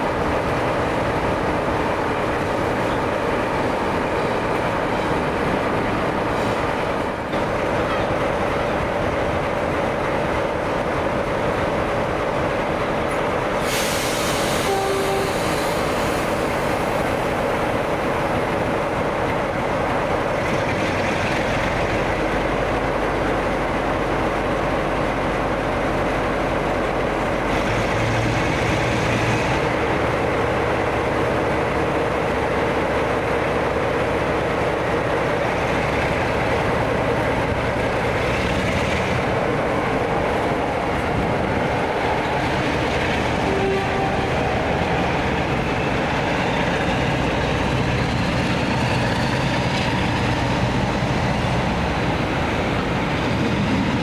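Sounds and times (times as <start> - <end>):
train running noise: 0.0 - 54.0
brief hiss: 13.6 - 16.8.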